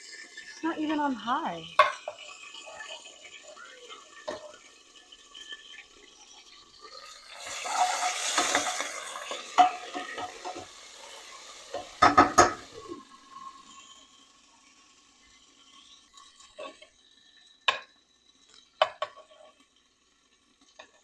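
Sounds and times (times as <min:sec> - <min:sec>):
sizzling and scraping: 0:07.0 - 0:13.0
spoon stirring food in pot: 0:07.8 - 0:10.7
spoon clanking against pot: 0:11.7 - 0:12.7.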